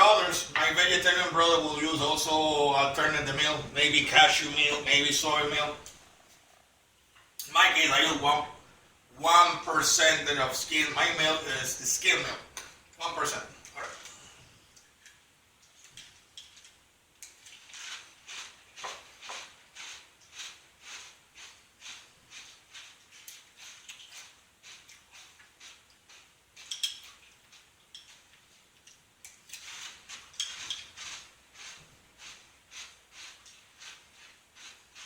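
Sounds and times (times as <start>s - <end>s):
cereal crunching chewing: 15.0s - 35.0s.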